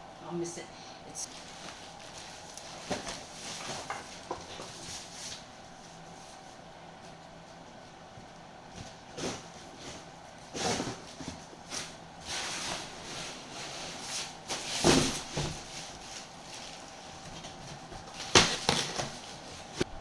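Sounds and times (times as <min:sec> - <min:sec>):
rustling: 0:08.7 - 0:19.9.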